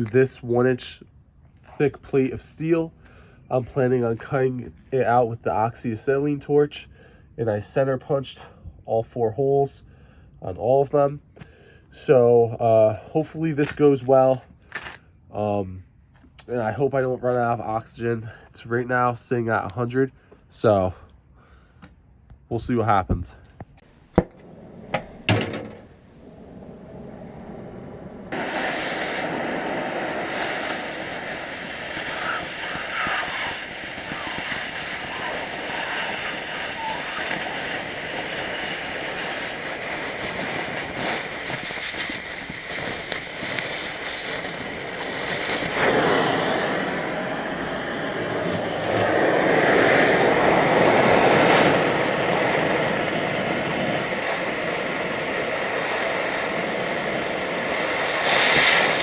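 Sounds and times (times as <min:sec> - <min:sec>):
cutting torch hissing: 0:23.8 - 0:59.0.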